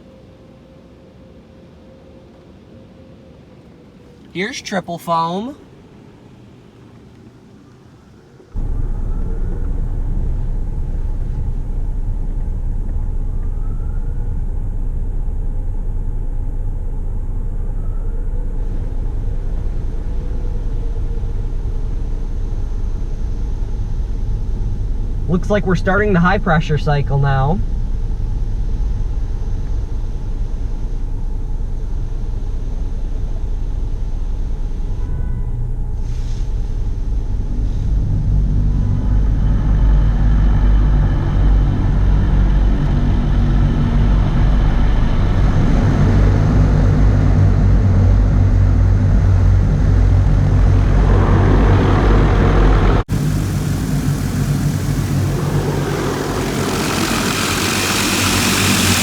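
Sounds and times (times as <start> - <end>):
hiss of spray: 53.1 - 59.0
water jets on car body: 53.1 - 59.0.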